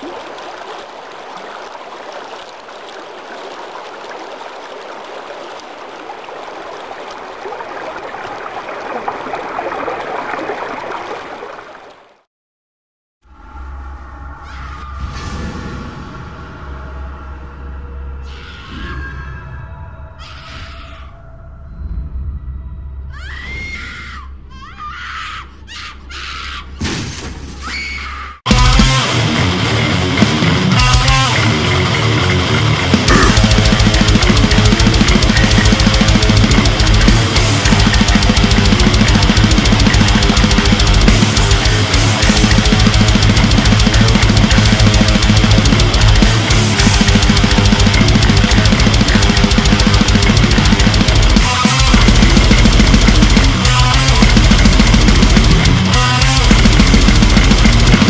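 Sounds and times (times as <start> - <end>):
shrill screams: 18.2 - 21.4, 23.1 - 26.8, 27.6 - 28.4
rushing crackling noise: 31.3 - 58.0.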